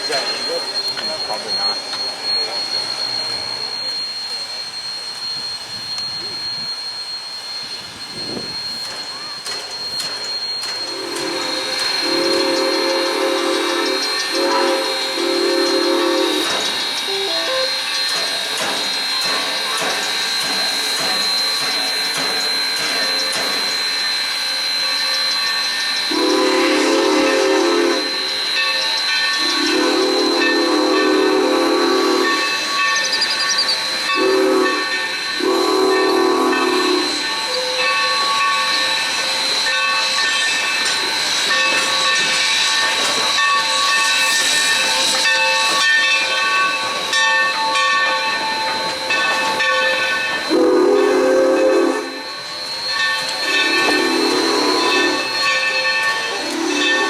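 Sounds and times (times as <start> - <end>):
steady steam hiss: 0.0 - 57.0
steam locomotive whistle blasts: 5.3 - 57.0.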